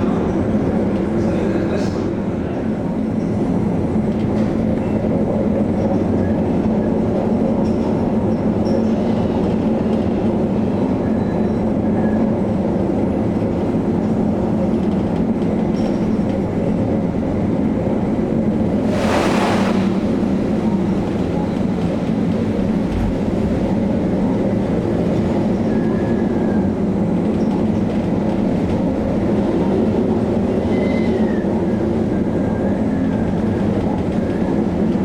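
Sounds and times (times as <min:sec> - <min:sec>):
ship engines droning: 0:16.5 - 0:27.2
brief rush of noise: 0:18.7 - 0:21.4.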